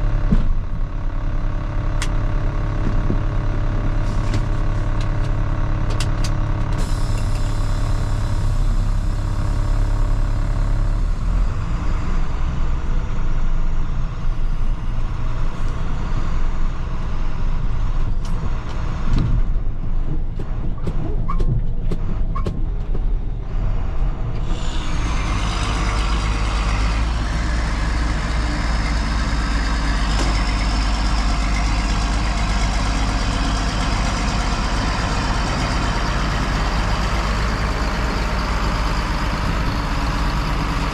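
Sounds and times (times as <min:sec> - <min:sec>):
diesel machinery running: 0:00.0 - 0:40.9.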